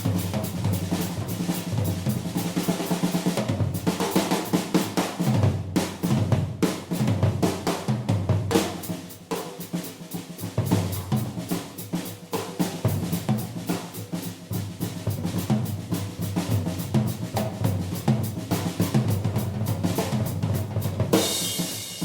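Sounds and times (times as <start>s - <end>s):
snare and bass drum strokes: 0.0s - 22.0s
cymbal crash: 21.2s - 22.0s.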